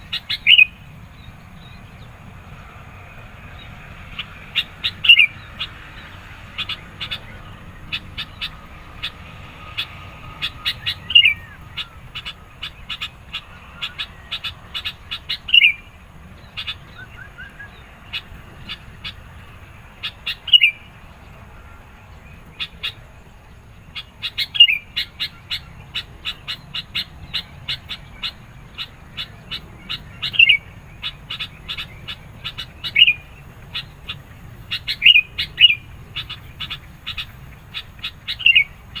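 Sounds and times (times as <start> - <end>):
bulbul chirping: 0.0 - 1.3, 23.9 - 39.0.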